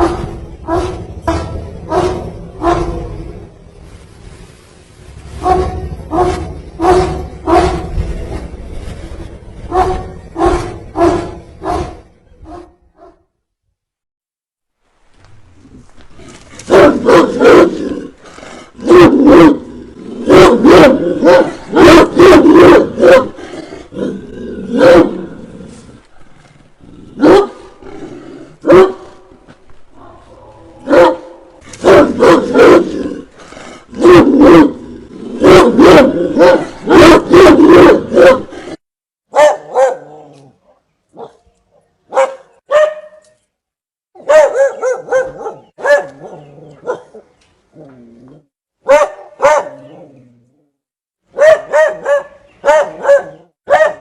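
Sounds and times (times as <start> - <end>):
dogs barking fiercely: 0.0 - 3.2, 5.4 - 8.0, 9.7 - 13.1, 16.6 - 17.9, 18.7 - 23.4, 24.7 - 25.3, 27.2 - 27.8, 28.6 - 29.2, 30.8 - 33.0, 33.8 - 38.6, 39.3 - 40.3, 42.1 - 43.2, 44.2 - 47.3, 48.8 - 50.1, 51.3 - 54.0.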